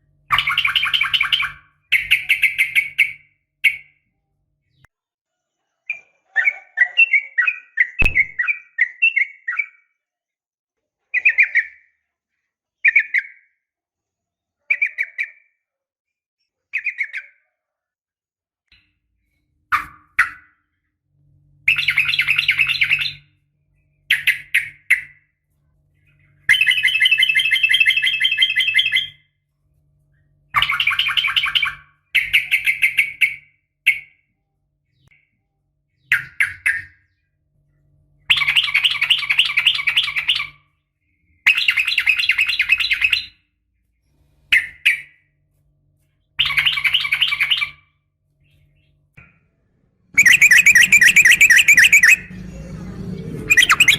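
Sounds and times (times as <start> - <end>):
faint low hum: 48.1 - 53.9
bird singing rapid bubbling notes: 50.2 - 52.7, 53.4 - 53.9.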